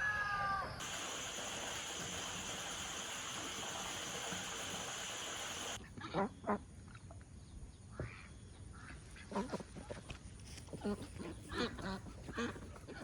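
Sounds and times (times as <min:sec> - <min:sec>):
steady hiss: 0:00.8 - 0:05.8.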